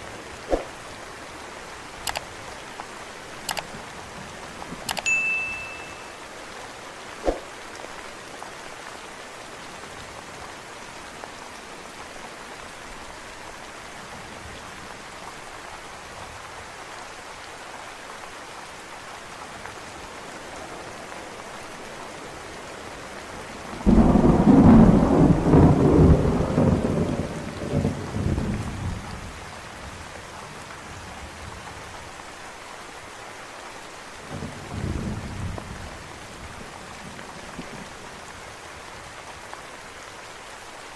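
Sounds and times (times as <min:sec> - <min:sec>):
steady rain falling: 0:00.0 - 0:40.9
thunder clap and rumble: 0:23.6 - 0:29.3.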